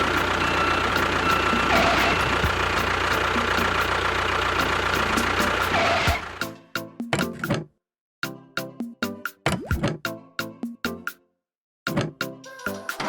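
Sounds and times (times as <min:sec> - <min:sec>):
fast regular ticking: 0:00.0 - 0:05.7
vehicle engine running: 0:00.0 - 0:06.5.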